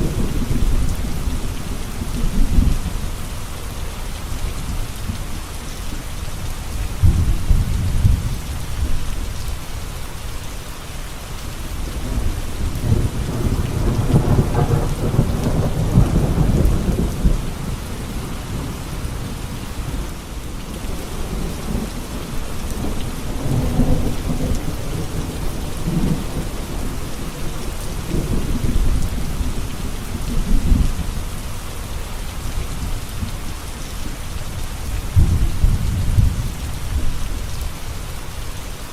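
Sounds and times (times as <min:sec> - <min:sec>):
heavy rain falling: 0:00.0 - 0:38.9
thunder rolling: 0:12.0 - 0:19.3.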